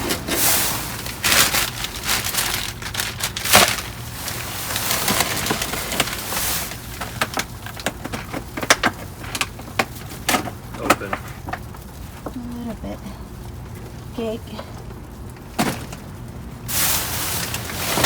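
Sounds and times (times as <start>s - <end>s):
trash bags and boxes shifting: 0.0s - 9.5s, 15.5s - 18.0s
crackling and crinkling: 0.0s - 18.0s.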